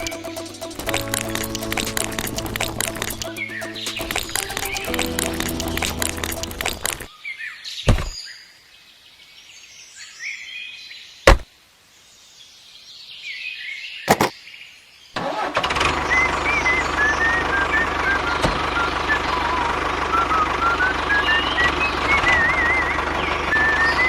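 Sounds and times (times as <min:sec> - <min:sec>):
music: 0:00.0 - 0:07.1
sharp knocks: 0:14.1 - 0:14.3
steady engine-like hum: 0:16.0 - 0:24.0.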